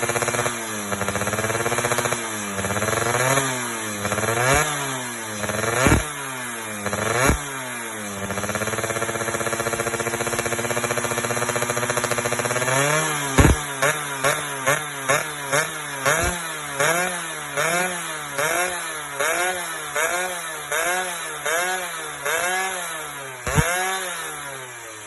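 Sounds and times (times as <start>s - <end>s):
two-stroke engine idling and revving: 0.0s - 25.0s
exhaust pops: 13.4s - 13.7s, 23.5s - 23.7s.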